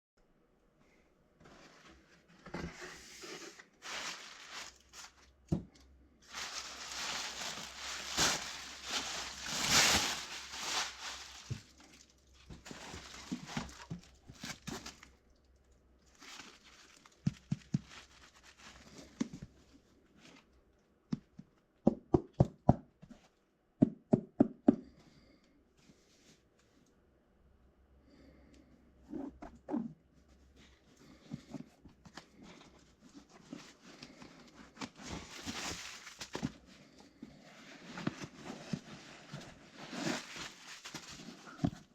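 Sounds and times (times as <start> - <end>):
paper rustling and tearing: 2.8 - 5.3, 6.3 - 11.9, 16.2 - 19.2, 34.1 - 36.6, 37.8 - 41.9.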